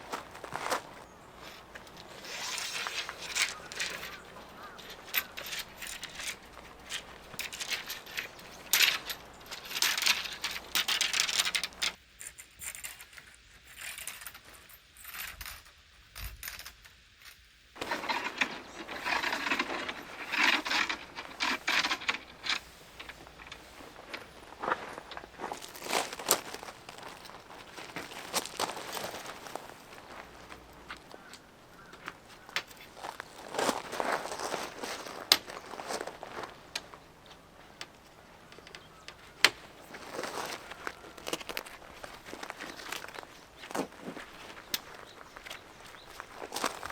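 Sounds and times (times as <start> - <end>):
rustling handling noises: 0.0 - 12.0, 17.8 - 46.9
small metal objects clinking: 1.4 - 12.0, 17.8 - 24.2, 25.2 - 31.0, 38.6 - 46.9.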